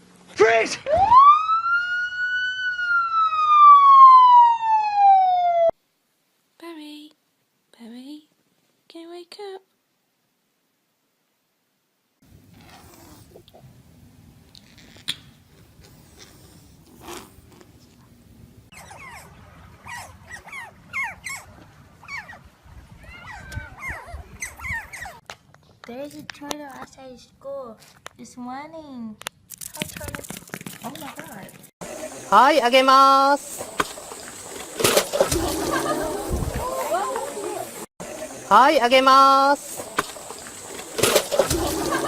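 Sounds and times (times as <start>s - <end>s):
siren wail: 0.8s - 5.8s
dog whimpering: 18.7s - 22.4s, 23.0s - 25.2s.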